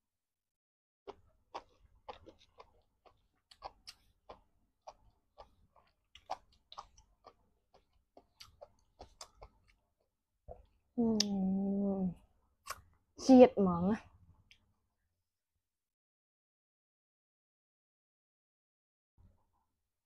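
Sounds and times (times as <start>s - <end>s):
wet chewing and lip smacking: 1.1s - 10.8s.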